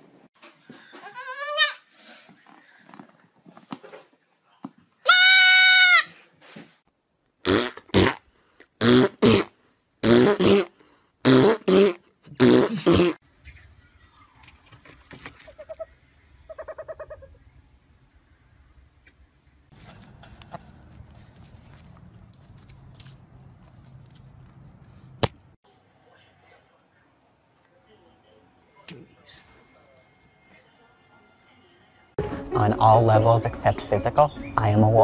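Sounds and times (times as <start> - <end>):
goat kid bleating: 1.0 - 1.9, 5.1 - 6.1.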